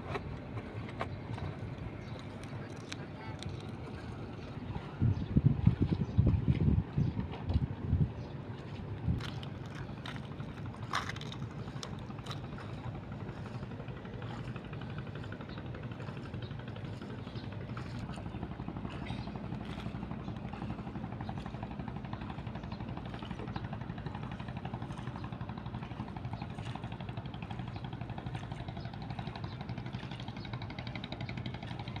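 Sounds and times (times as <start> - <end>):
engine idling: 8.4 - 32.0.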